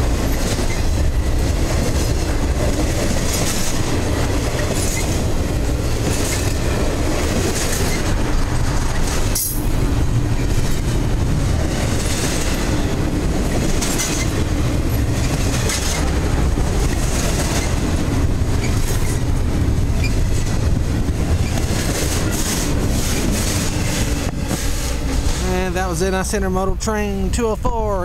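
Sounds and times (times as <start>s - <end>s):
clickety-clack over rail joints: 0.0s - 25.7s
freight train wheels rumbling: 0.0s - 28.0s.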